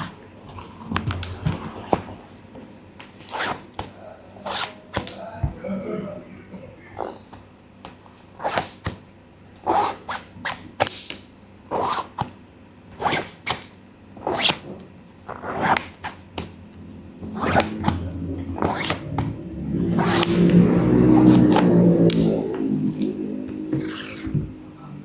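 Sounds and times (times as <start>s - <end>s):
rasping strokes on a sneaker: 17.2s - 24.6s.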